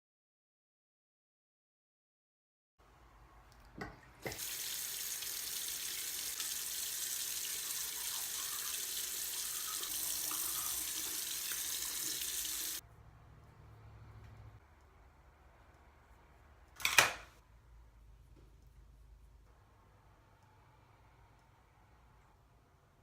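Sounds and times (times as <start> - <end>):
water running from a tap: 4.2 - 12.8.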